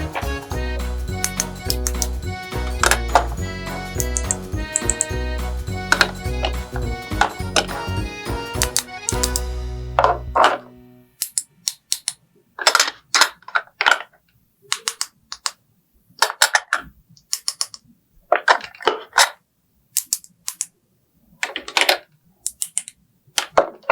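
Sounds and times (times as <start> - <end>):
plastic toy pieces clicking: 1.2 - 5.1, 11.2 - 15.6, 16.2 - 19.4, 20.0 - 20.7, 21.4 - 23.9.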